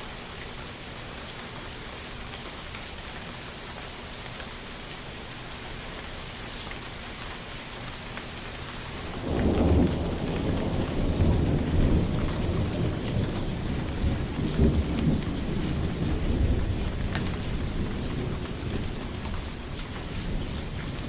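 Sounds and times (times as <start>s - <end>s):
rain hissing: 0.0s - 21.0s
thunder rumbling: 8.9s - 21.0s.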